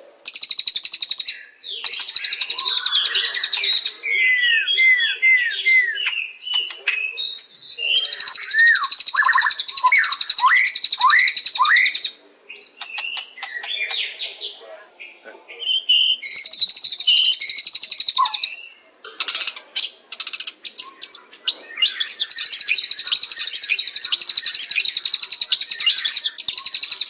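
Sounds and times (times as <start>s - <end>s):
bird singing rattles and whistles: 0.3s - 3.9s, 6.1s - 12.1s, 15.6s - 19.0s, 20.2s - 27.0s
sharp clicks: 12.8s - 14.0s.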